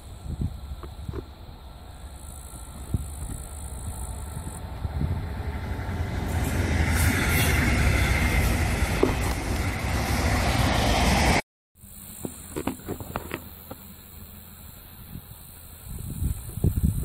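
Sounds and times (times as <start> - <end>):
train wheels rumbling on rails: 0.6 - 11.4.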